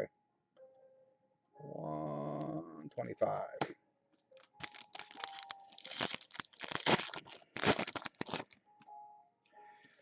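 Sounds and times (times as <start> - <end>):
wrapper tearing and crinkling: 4.4 - 8.6.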